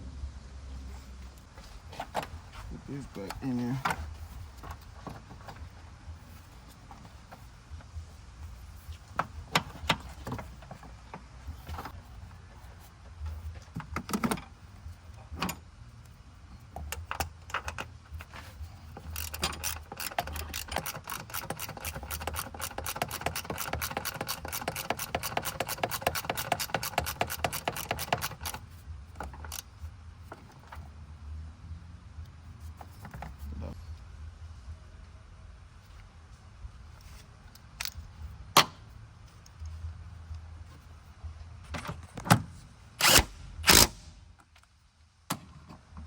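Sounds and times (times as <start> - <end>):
ratchet wrench clicking: 19.0 - 28.6.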